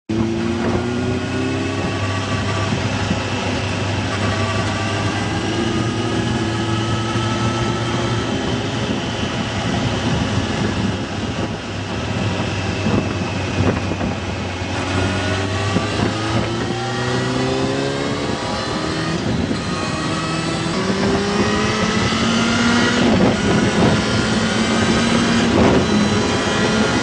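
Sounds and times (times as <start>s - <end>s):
engine running: 0.1s - 27.0s
rising high tones: 14.8s - 27.0s.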